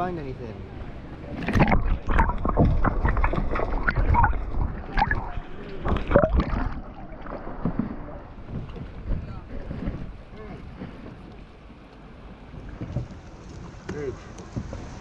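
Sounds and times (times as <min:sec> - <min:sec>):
sea water splashing and gurgling: 0:00.0 - 0:15.0
wind buffeting microphone: 0:00.0 - 0:15.0.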